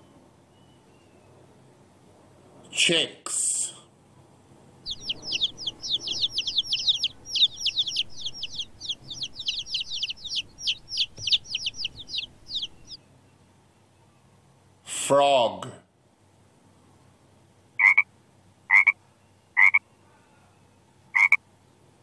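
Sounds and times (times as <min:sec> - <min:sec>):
baby chicks peeping: 0:04.8 - 0:13.0.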